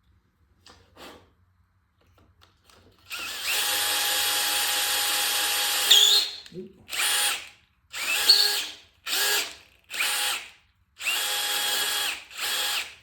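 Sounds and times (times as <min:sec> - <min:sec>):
power drill boring into metal: 0:03.1 - 0:07.4, 0:08.0 - 0:10.4.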